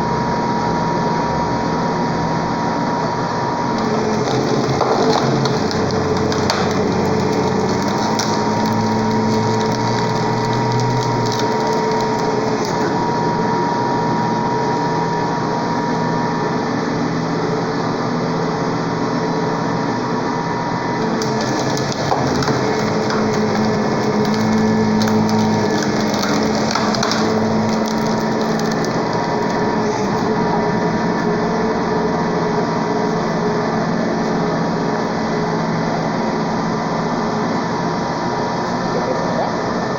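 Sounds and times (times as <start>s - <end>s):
hydraulic log splitter motor drone: 0.0s - 39.9s
wood crushing and splitting: 3.7s - 13.2s, 20.9s - 31.0s.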